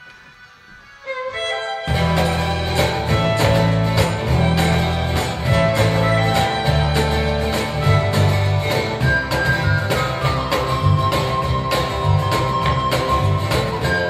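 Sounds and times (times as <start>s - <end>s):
live band playing: 0.0s - 14.0s.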